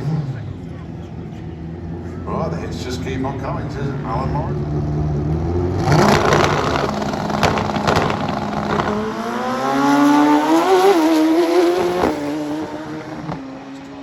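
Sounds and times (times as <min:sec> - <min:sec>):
motorcycle engine at full throttle: 0:03.3 - 0:13.9.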